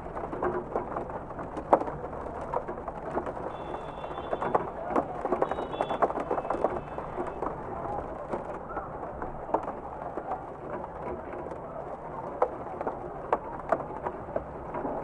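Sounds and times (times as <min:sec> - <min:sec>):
steady rainfall: 0:00.0 - 0:15.0.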